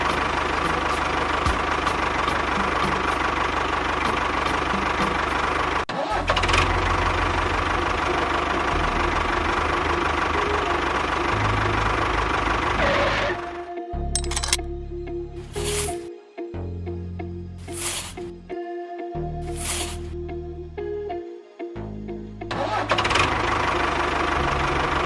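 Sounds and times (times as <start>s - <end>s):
small engine running: 0.0s - 13.6s, 22.5s - 25.0s.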